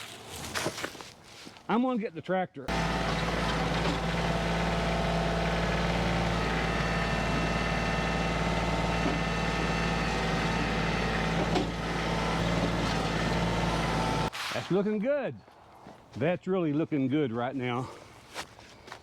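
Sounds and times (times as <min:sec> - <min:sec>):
tractor diesel engine running: 0:02.7 - 0:14.3.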